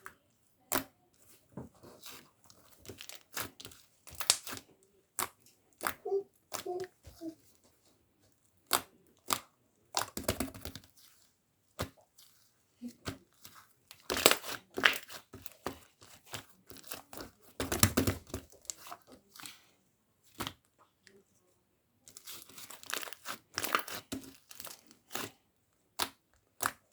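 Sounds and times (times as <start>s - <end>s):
slime crackling and tearing: 2.8s - 4.6s, 13.9s - 15.6s, 22.2s - 25.3s.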